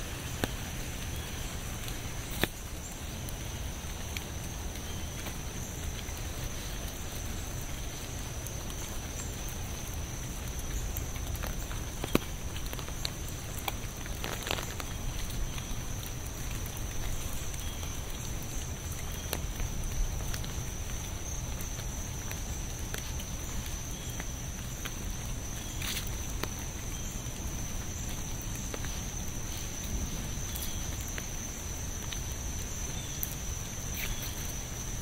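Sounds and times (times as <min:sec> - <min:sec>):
steady rain: 0:00.0 - 0:35.0
water drips ticking: 0:00.2 - 0:35.0.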